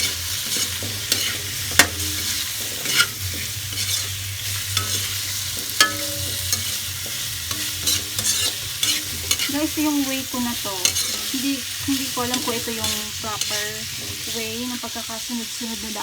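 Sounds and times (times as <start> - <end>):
utensil clinking against pan: 0.0 - 14.6
vegetables sizzling in a pan: 0.0 - 16.0.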